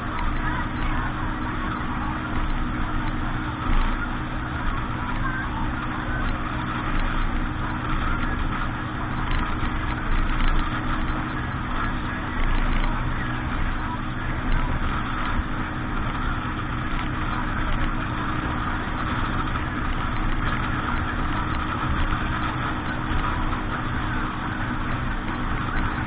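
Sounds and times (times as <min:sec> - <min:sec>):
boat engine running: 0:00.0 - 0:26.0
steady rushing noise: 0:00.0 - 0:26.0.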